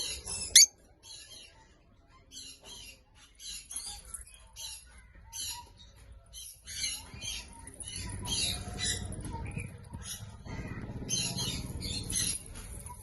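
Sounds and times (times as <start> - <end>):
lovebird chirping: 0.0 - 0.8.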